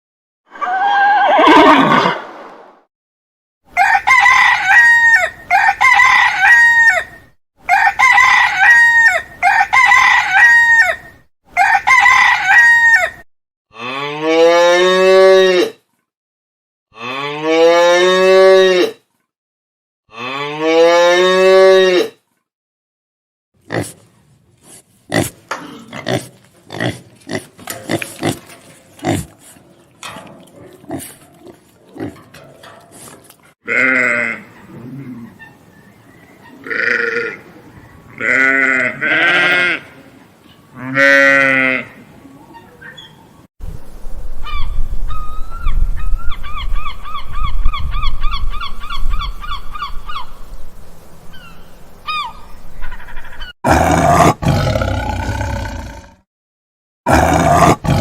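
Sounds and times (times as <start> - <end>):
long rising animal calls: 0.5 - 2.2
short farm animal calls: 33.7 - 35.7, 36.4 - 37.5, 38.2 - 43.2.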